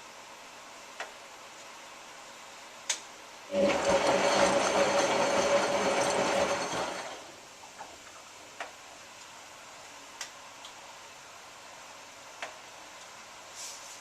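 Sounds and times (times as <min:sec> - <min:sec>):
washing machine drum turning: 0:03.5 - 0:07.2.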